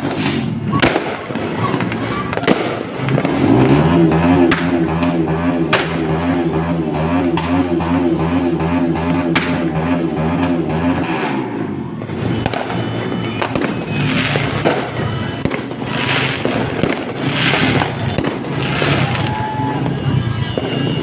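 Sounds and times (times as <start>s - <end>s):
hissing crackling firework bursts: 0.0s - 3.5s, 15.8s - 19.7s
fireworks bangs: 0.0s - 7.8s, 8.5s - 21.0s.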